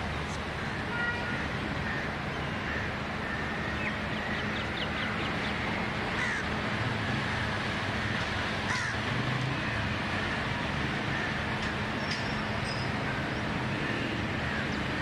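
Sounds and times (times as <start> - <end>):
birds calling: 1.9 - 6.5, 8.0 - 9.0.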